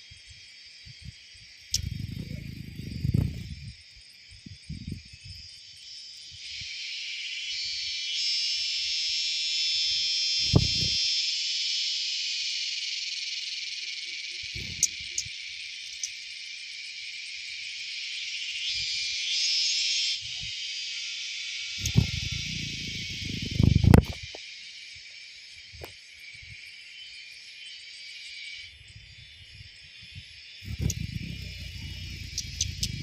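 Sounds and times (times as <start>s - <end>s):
high insect chorus: 0.0s - 33.0s.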